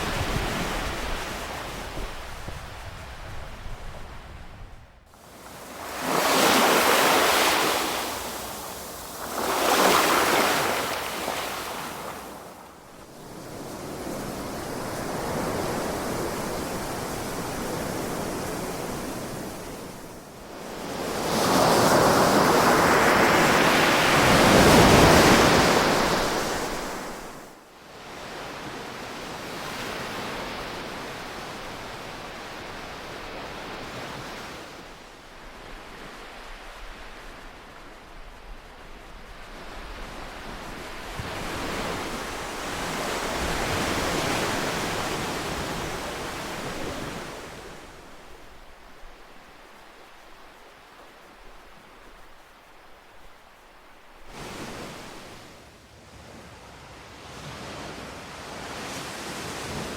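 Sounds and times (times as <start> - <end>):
ocean waves breaking: 5.1 - 20.1.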